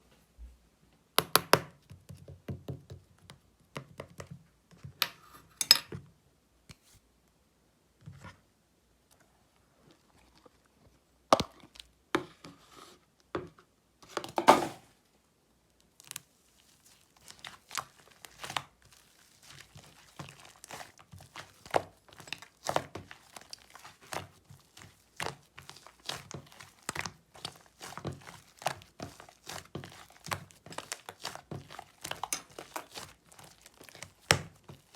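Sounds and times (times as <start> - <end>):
slime squished and stretched by hand: 15.7 - 34.9.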